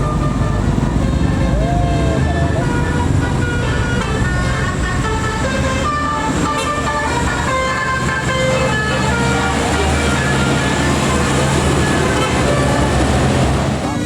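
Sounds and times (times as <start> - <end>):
bus engine running: 0.0 - 14.0
bus musical horn: 0.0 - 14.0.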